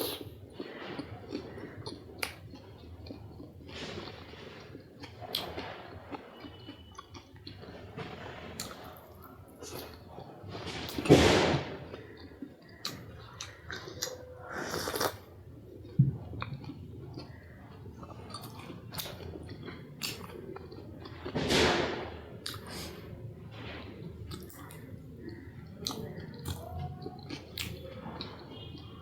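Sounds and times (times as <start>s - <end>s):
chewing snack food: 0.0s - 29.0s.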